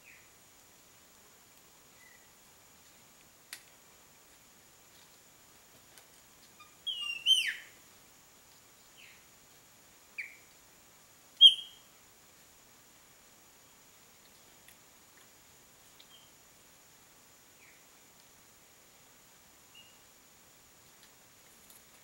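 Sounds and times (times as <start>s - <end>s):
high downslurred bird chirps: 6.6s - 7.8s, 10.2s - 10.5s, 11.4s - 11.9s.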